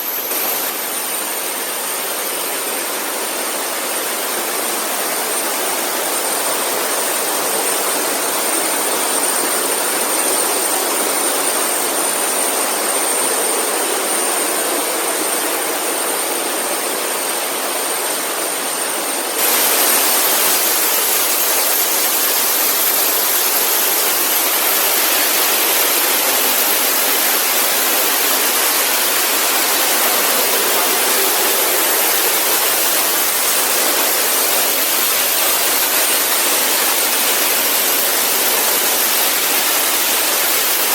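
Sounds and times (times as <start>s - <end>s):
waterfall rushing: 11.4s - 40.9s.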